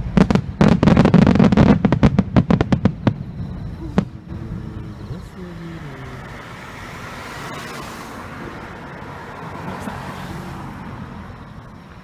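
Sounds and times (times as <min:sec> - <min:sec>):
murmur of outdoor crowd: 0:03.1 - 0:10.6
faint voices: 0:03.7 - 0:06.6.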